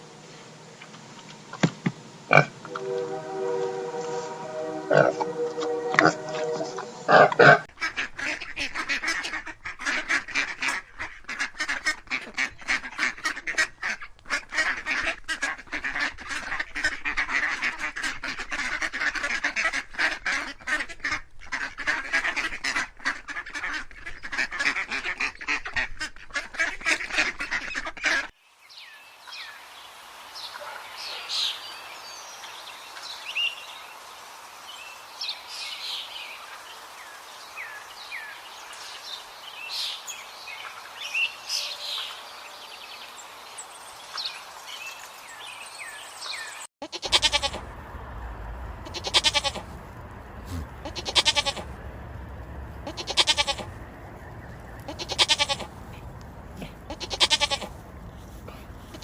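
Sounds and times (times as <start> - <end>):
flock of waterfowl calling: 2.3 - 28.3.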